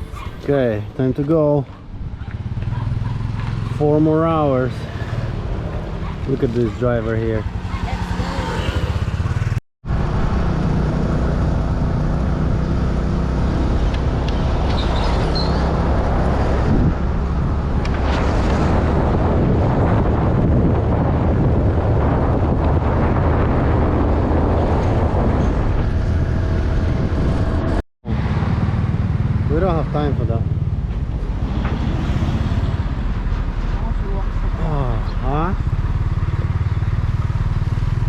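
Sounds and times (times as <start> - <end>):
wind and road noise: 0.0 - 38.0
motorcycle engine running: 2.0 - 4.7, 22.6 - 31.2, 33.8 - 38.0.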